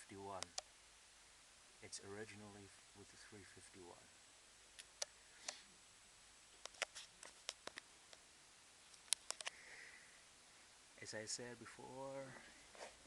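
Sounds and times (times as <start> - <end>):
sharp clicks and ticks: 0.4 - 0.7, 6.6 - 8.2, 8.9 - 9.6.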